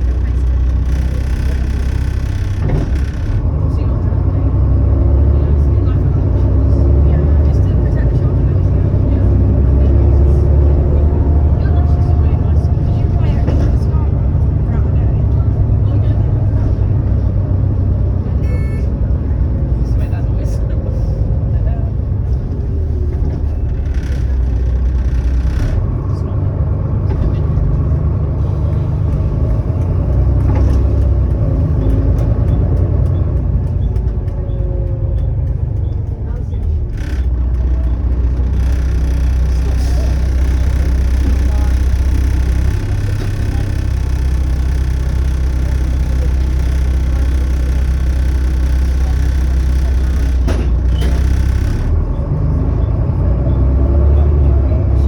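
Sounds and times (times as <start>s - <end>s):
bus diesel engine rumbling: 0.0s - 55.0s
exhaust rattle: 0.0s - 55.0s
bodywork rattling clicks: 23.2s - 25.9s, 28.7s - 52.1s.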